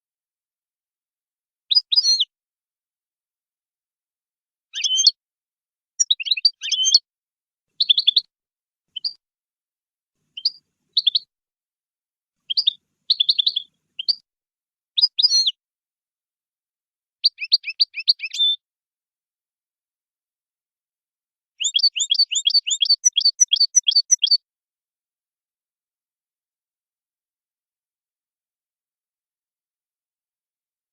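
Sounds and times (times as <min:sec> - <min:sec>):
goldfinch singing: 0:04.7 - 0:05.2, 0:06.0 - 0:07.0, 0:07.8 - 0:08.3, 0:10.4 - 0:11.3, 0:12.5 - 0:14.2, 0:17.2 - 0:18.6, 0:21.6 - 0:24.4.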